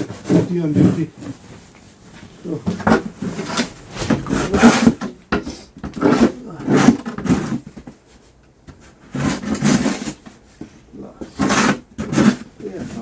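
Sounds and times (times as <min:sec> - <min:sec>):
snow shovel scraping snow: 0:03.2 - 0:05.1.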